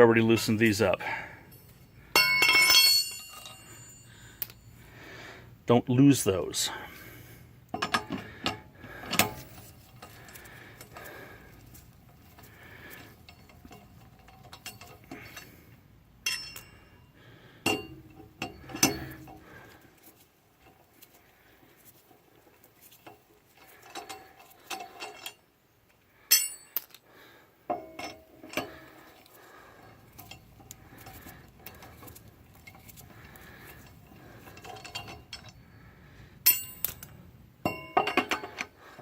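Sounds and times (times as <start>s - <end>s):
lug wrench clinking on lug nuts: 0.3s - 4.8s, 7.7s - 19.7s, 22.9s - 25.5s, 26.2s - 27.0s, 27.7s - 35.7s, 36.4s - 38.8s.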